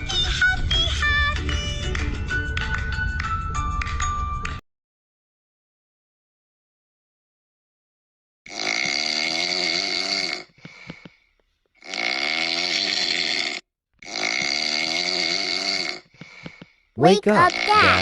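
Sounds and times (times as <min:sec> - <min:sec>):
person snoring: 0:08.5 - 0:11.0, 0:11.8 - 0:16.6, 0:17.4 - 0:18.0
faint breath: 0:10.5 - 0:11.7, 0:16.0 - 0:17.0.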